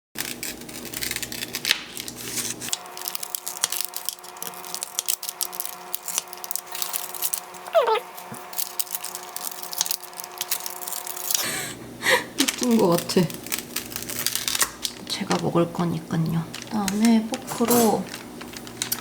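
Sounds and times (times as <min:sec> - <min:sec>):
faint steady hum: 0:04.3 - 0:19.0
dog whining: 0:07.7 - 0:08.1.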